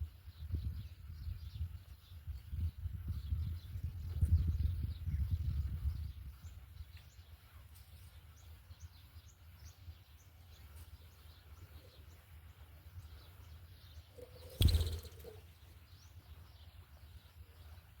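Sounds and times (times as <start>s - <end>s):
high bird chirps: 14.1s - 15.6s.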